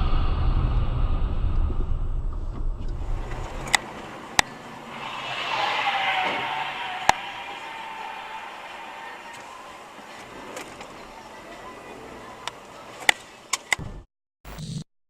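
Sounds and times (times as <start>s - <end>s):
car driving: 0.0s - 13.8s
hiss: 4.7s - 9.7s.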